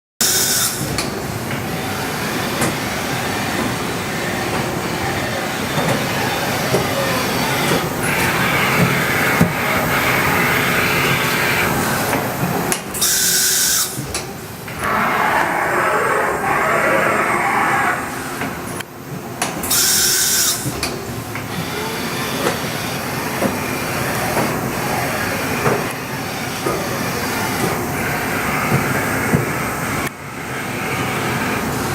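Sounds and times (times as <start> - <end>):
machining center running: 13.8 - 19.4.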